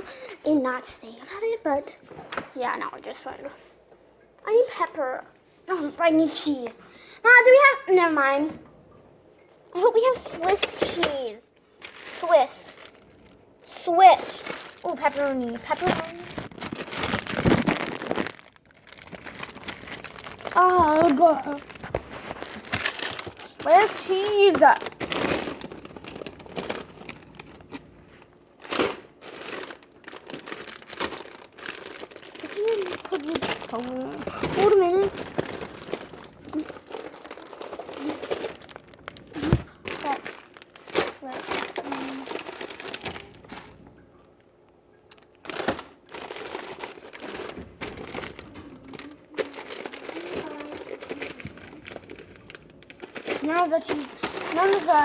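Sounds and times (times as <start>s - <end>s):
plastic packaging crinkling: 11.8s - 44.5s, 45.1s - 55.0s.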